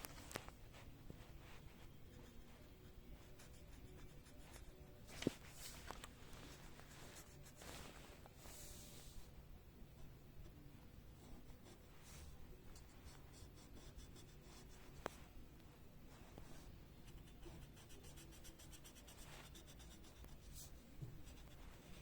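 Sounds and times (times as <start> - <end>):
colouring tool scratching paper: 17.0 - 20.5.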